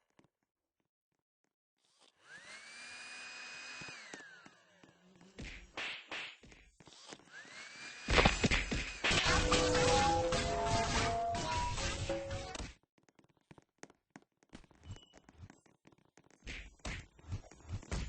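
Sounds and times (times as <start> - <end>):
blow dryer motor whine: 2.3 - 4.8, 7.3 - 11.1.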